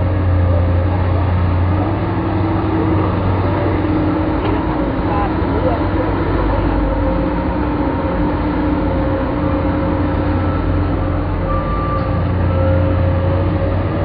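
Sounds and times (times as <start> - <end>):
excavator diesel engine droning: 0.0 - 14.0.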